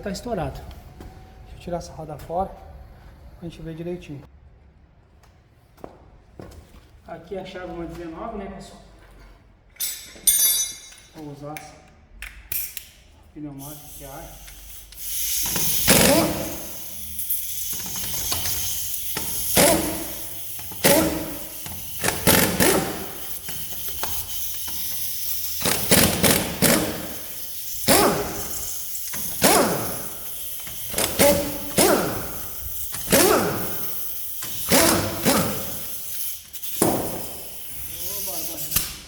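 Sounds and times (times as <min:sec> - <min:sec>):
air hiss: 0:13.6 - 0:39.0
impact wrench bursts: 0:13.6 - 0:39.0.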